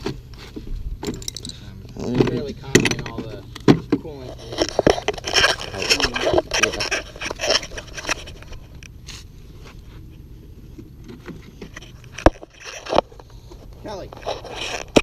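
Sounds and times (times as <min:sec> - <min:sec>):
hand tools scraping metal: 0:04.2 - 0:09.3.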